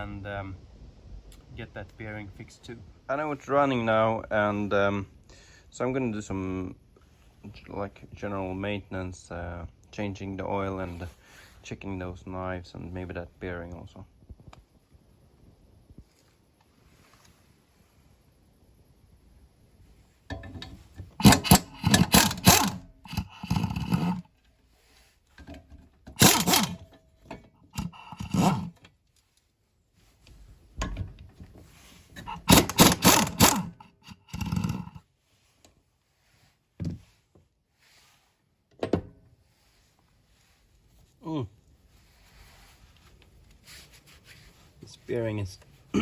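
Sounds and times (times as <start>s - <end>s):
hand tools and metal parts clanking: 20.3s - 24.4s, 25.3s - 28.9s, 30.8s - 35.0s.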